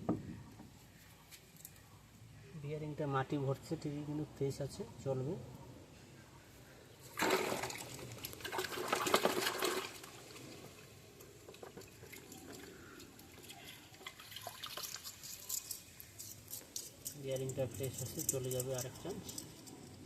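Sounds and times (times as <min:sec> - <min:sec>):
water trickling: 0:07.1 - 0:19.7.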